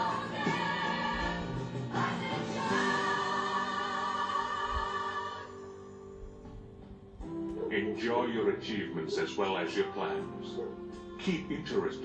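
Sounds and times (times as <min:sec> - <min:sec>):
choir singing held chords: 0:00.0 - 0:06.3.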